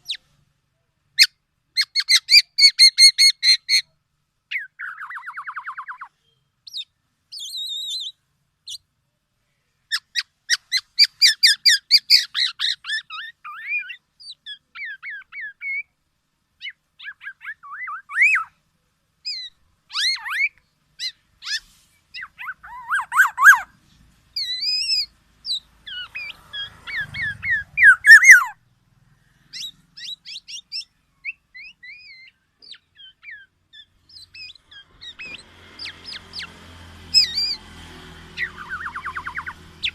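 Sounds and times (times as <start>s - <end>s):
harsh rasping bird call: 19.2s - 39.9s
oriole calling: 19.3s - 23.8s, 24.4s - 28.6s, 29.5s - 37.7s, 38.3s - 39.9s.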